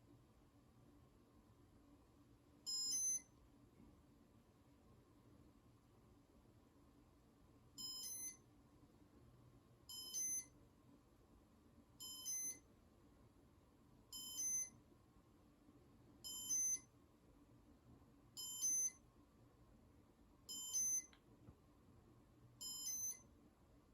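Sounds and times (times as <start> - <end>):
electronic multi-tone beep: 16.3 - 16.8.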